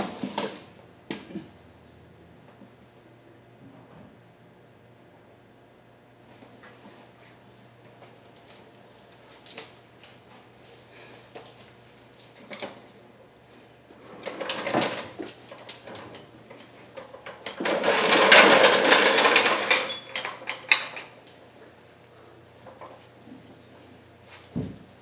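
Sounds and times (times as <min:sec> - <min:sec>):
hand tools rattling against metal: 0:17.6 - 0:21.0.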